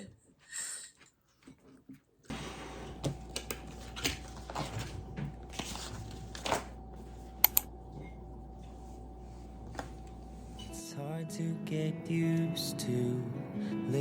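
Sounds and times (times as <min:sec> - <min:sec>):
low room hum: 0:02.3 - 0:10.8.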